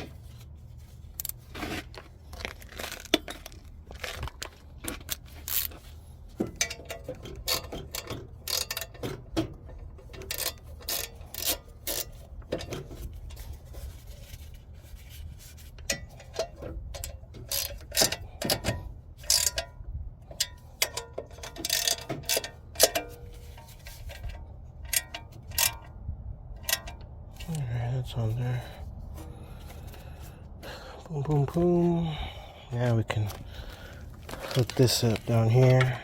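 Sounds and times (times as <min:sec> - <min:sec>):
ratchet wrench clicking: 0:06.6 - 0:09.0, 0:10.1 - 0:12.2, 0:15.9 - 0:18.6, 0:19.2 - 0:19.7, 0:20.4 - 0:23.2, 0:24.8 - 0:25.8.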